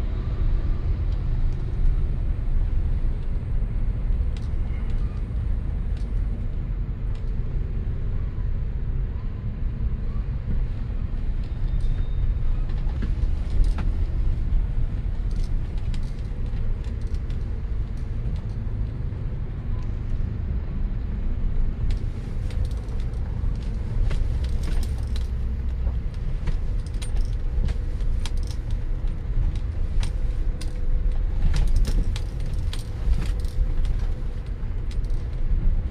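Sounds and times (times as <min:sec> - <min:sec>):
road vehicle rumble: 0:00.0 - 0:35.9
rattles and clicks: 0:12.7 - 0:18.6, 0:21.8 - 0:35.9.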